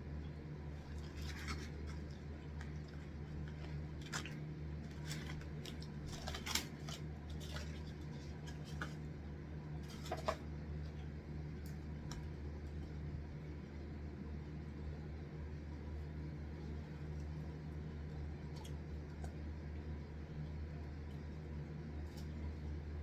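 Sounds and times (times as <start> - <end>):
steady low hum: 0.0 - 23.0
crisp eating crunches: 0.7 - 9.2.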